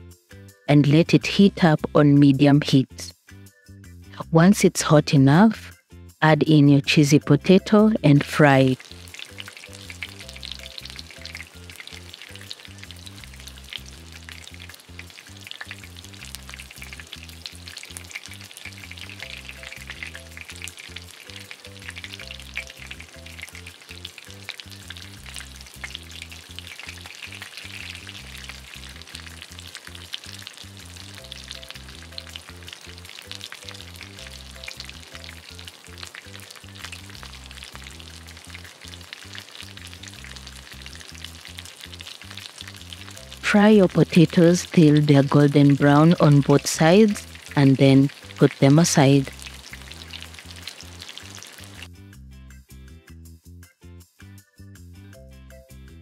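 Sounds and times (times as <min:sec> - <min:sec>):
patties sizzling in oil: 0:07.5 - 0:51.9.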